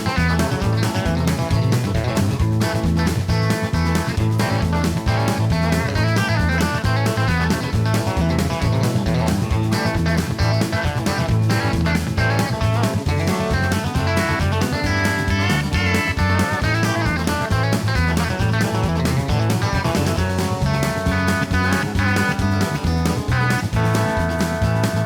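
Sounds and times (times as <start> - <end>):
guitar music with drums: 0.0 - 25.0.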